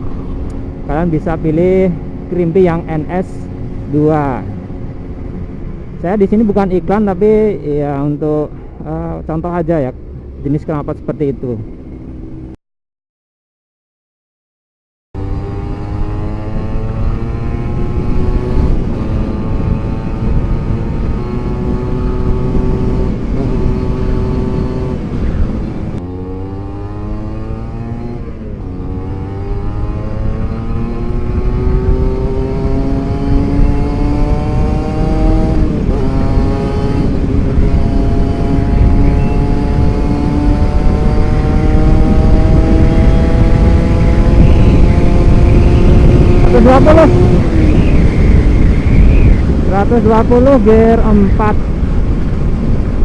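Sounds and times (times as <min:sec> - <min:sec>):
wind rumble on microphone: 0:00.0 - 0:12.5, 0:15.2 - 0:53.0
motorcycle engine accelerating hard: 0:15.2 - 0:53.0.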